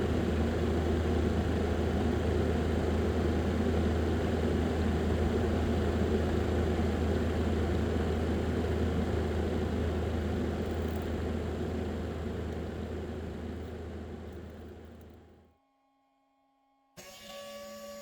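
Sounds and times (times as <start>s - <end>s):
small electric motor humming: 17.0s - 18.0s.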